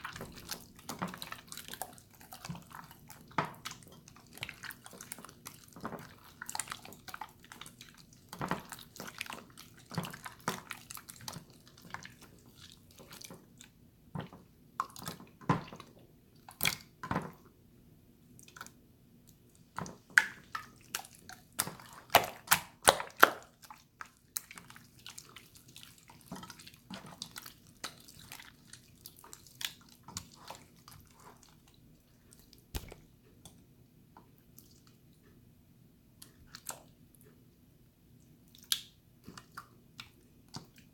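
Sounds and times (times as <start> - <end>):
slime squelching by hand: 0.0 - 17.0, 18.4 - 33.2.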